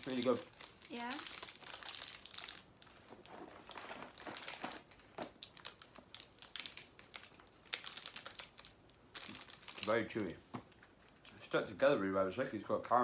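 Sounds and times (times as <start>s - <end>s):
plastic wrapper crinkling: 0.0s - 11.4s.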